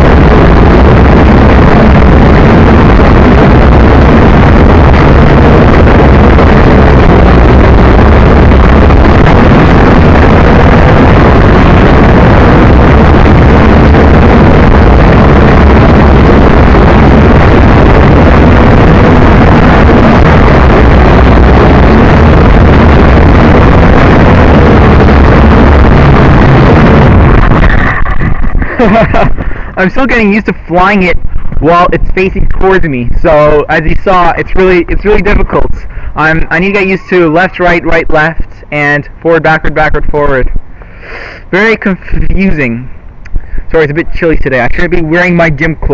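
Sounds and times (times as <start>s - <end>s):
drone motors whining: 0.0s - 30.4s
wind buffeting microphone: 0.0s - 45.9s.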